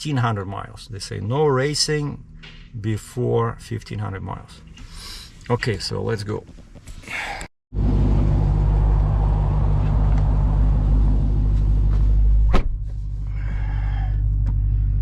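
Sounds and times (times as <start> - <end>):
car engine deep rumble: 7.7 - 15.0.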